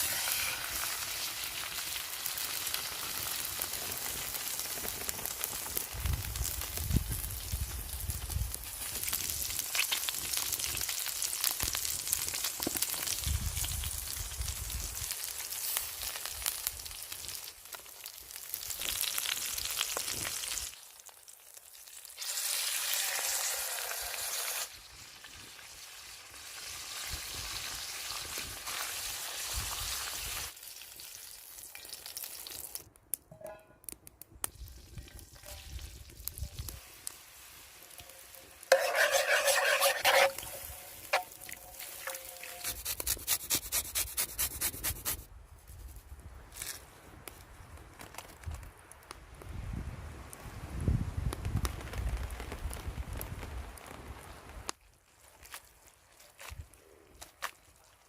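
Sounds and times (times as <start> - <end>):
food sizzling in a pan: 0.0 - 4.7, 6.2 - 32.8, 34.9 - 43.4.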